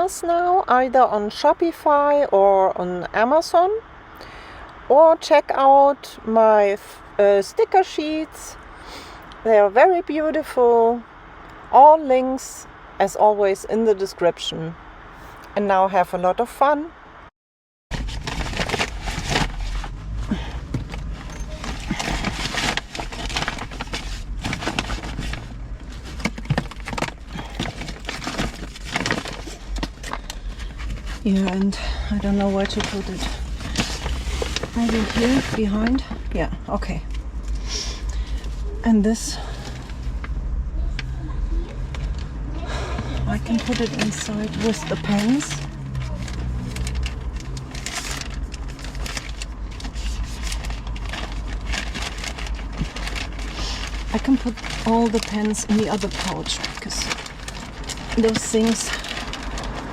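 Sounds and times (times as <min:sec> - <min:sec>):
bags rustling and crinkling: 0:17.9 - 0:36.6, 0:37.2 - 0:40.4, 0:41.7 - 0:59.9
steady low rumble: 0:17.9 - 0:59.9
small items knocking: 0:18.0 - 0:31.6.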